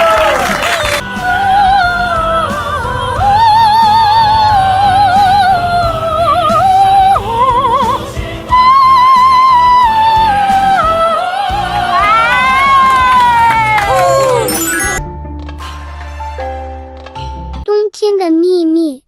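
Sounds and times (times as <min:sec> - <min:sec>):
person singing with vibrato: 0:01.0 - 0:12.3.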